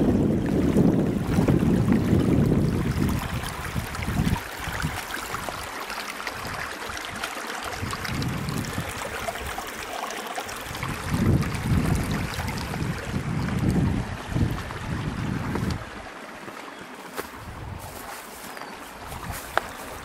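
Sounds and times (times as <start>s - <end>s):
wind buffeting microphone: 0.0s - 5.7s, 7.6s - 9.7s, 10.6s - 16.1s, 17.3s - 18.2s, 18.9s - 20.0s
flowing stream water: 0.0s - 20.0s.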